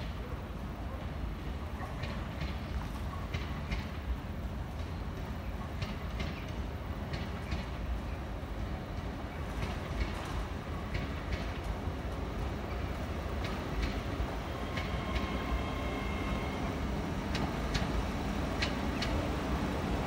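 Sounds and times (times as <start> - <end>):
train rumbling: 0.0 - 20.0
wheels clicking over rail joints: 8.9 - 20.0.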